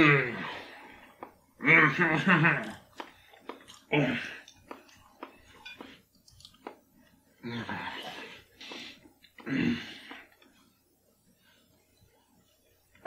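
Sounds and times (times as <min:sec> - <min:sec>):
man chewing: 0:00.5 - 0:01.5, 0:02.6 - 0:07.2.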